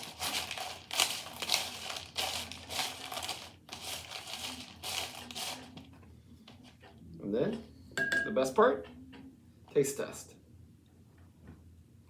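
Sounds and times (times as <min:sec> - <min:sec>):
snack mix stirred in a bowl: 0:00.0 - 0:05.9.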